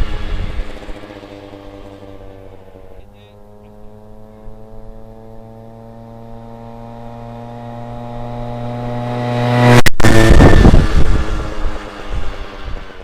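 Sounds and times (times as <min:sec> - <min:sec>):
scooter engine passing by: 0:00.0 - 0:13.0.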